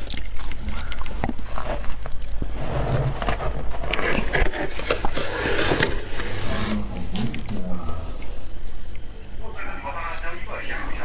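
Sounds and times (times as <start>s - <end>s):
freezer frost crunching: 0.0s - 8.4s.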